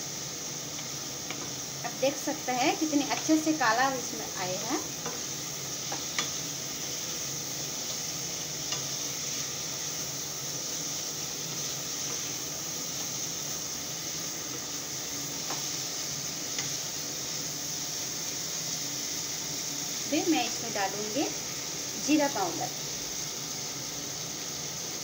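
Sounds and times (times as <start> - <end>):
food sizzling in a pan: 0.0 - 25.0
spoon clicking against pan: 5.9 - 6.4.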